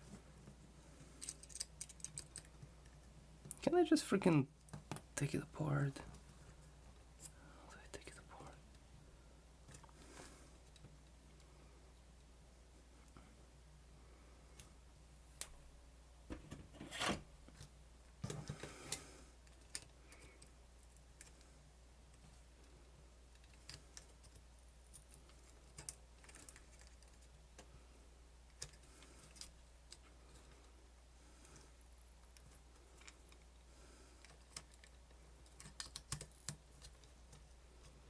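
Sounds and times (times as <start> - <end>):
plastic parts clicking: 1.2 - 2.6.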